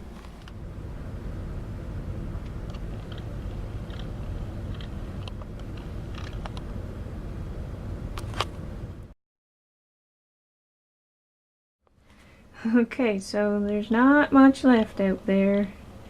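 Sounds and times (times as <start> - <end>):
low outdoor rumble: 0.0 - 9.2.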